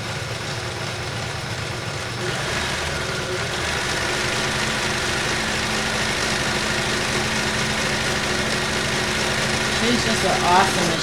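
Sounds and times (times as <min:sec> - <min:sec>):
sewing machine running: 0:01.1 - 0:11.0.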